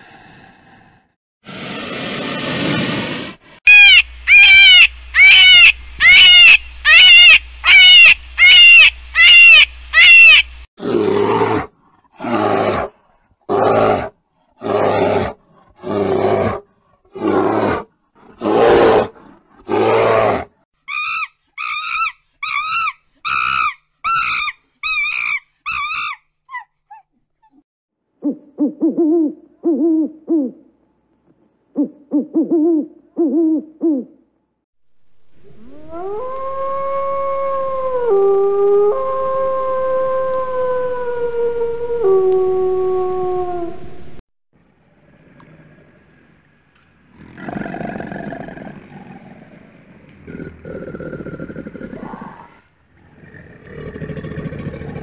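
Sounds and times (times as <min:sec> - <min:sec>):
loud high animal calls: 0:03.7 - 0:10.5
owl hooting: 0:03.7 - 0:10.5, 0:31.8 - 0:34.2.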